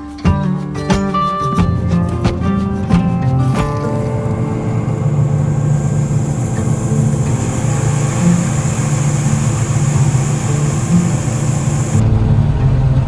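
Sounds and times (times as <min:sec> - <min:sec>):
combine harvester engine drone: 0:03.6 - 0:13.0.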